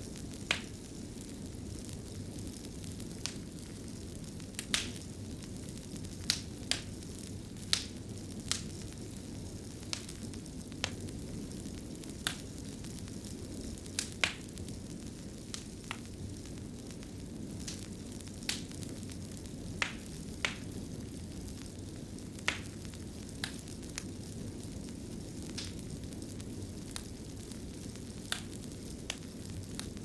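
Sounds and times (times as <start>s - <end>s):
fire crackling and popping: 0.0s - 30.0s
low rumble of flames: 0.0s - 30.0s.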